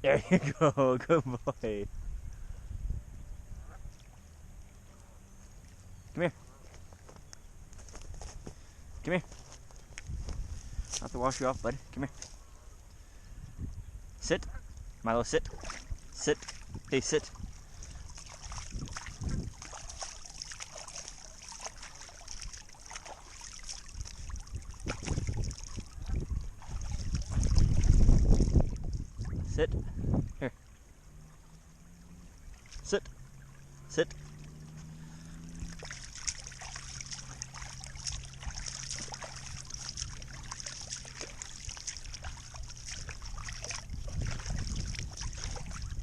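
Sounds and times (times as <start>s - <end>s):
wind rumble on microphone: 1.5s - 5.1s, 7.3s - 46.0s
water trickling: 14.6s - 46.0s.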